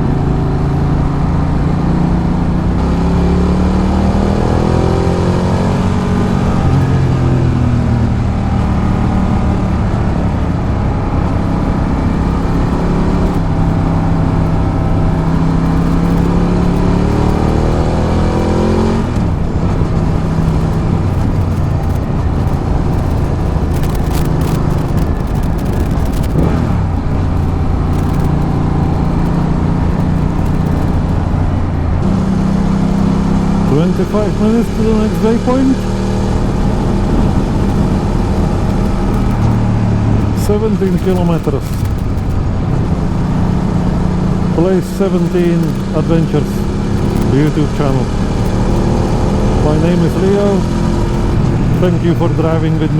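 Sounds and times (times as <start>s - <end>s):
motorcycle engine while riding: 0.0s - 52.9s
wind rush on microphone: 0.0s - 52.9s.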